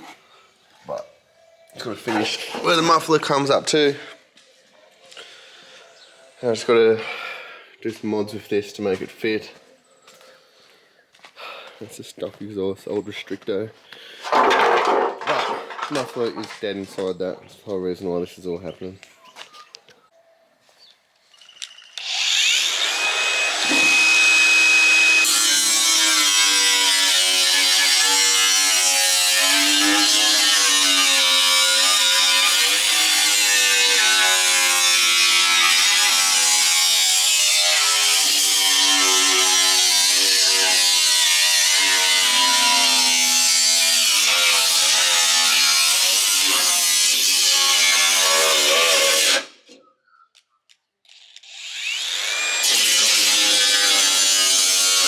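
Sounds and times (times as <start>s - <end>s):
power tool cutting steel tubing: 21.6s - 49.6s, 51.0s - 55.0s.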